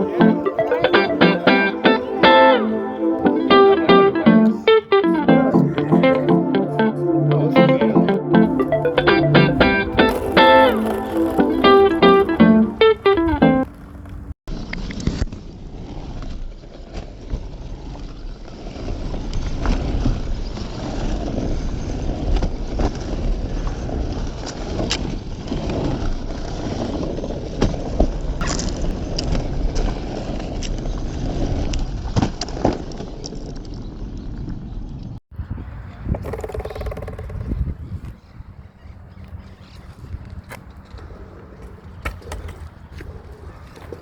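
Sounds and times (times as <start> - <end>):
skateboard clicks and knocks: 8.5 - 14.3, 36.0 - 38.2, 40.0 - 44.0
skateboard wheels rolling on pavement: 8.5 - 44.0.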